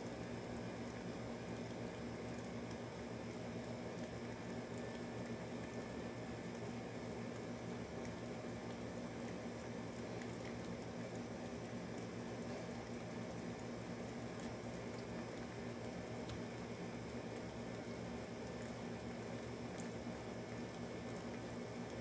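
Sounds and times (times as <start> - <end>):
air conditioner humming: 0.0 - 22.0.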